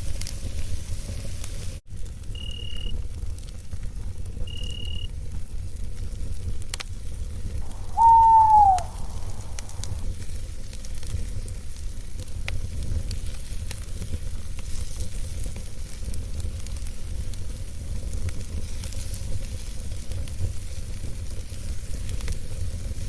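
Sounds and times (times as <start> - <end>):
owl hooting: 7.6 - 10.0.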